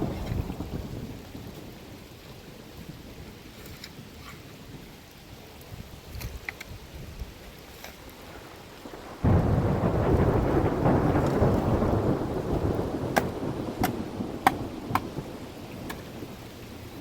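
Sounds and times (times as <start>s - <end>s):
thunder rumbling: 0.0s - 3.5s, 8.2s - 17.0s
steady rain: 0.0s - 17.0s.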